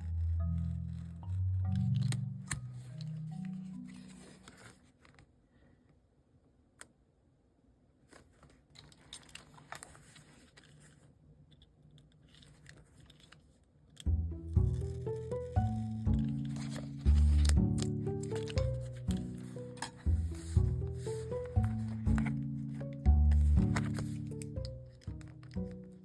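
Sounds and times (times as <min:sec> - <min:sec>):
background music: 0:00.0 - 0:04.7, 0:14.1 - 0:26.0
paper and sticker handling: 0:00.1 - 0:05.2, 0:08.1 - 0:11.1, 0:14.7 - 0:26.0.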